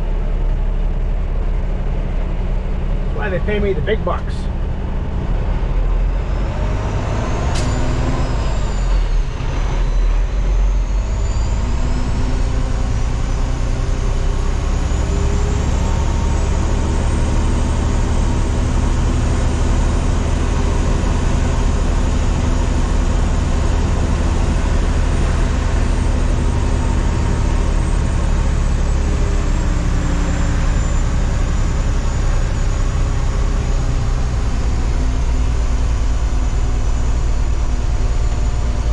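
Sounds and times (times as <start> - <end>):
diesel truck engine running: 0.0 - 38.9.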